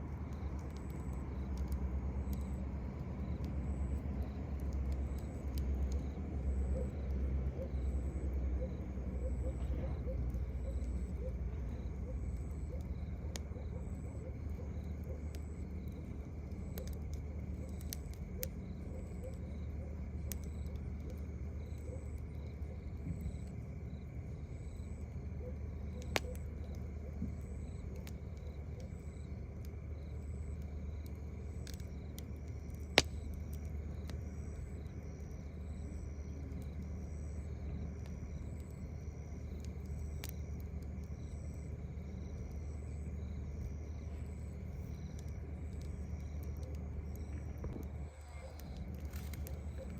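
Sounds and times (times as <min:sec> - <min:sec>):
campfire crackling: 0:00.0 - 0:49.9
crickets chirping: 0:00.0 - 0:49.9.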